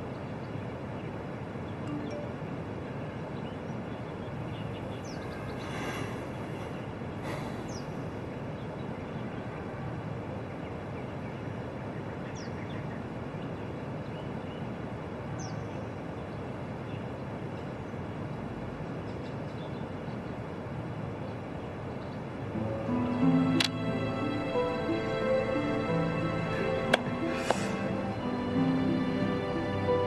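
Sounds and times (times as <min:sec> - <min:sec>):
outdoor ambience: 0:00.0 - 0:30.0
faint high chirps: 0:01.8 - 0:02.8.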